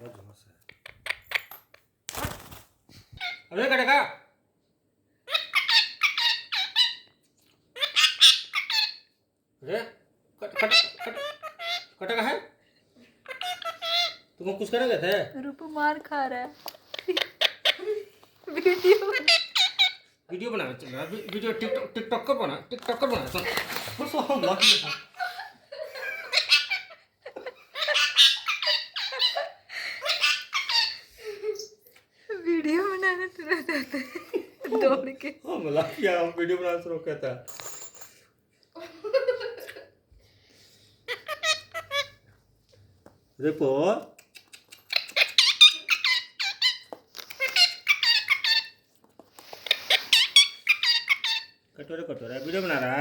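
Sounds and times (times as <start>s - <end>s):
parrot squawking and chattering: 3.2s - 3.6s, 5.2s - 9.2s, 10.4s - 12.5s, 13.2s - 14.4s, 16.6s - 20.2s, 23.2s - 25.2s, 26.1s - 31.8s, 41.1s - 42.3s, 44.2s - 53.0s.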